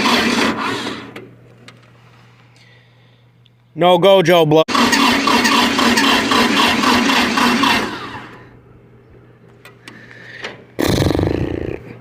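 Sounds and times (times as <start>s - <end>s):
tractor engine cranking: 0.0s - 1.8s, 4.7s - 8.5s.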